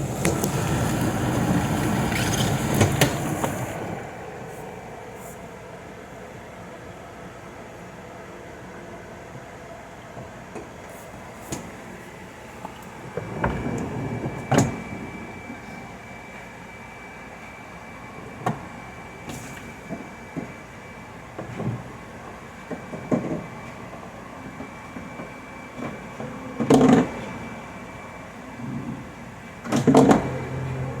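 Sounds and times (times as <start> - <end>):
faint high whine: 0.0 - 8.2.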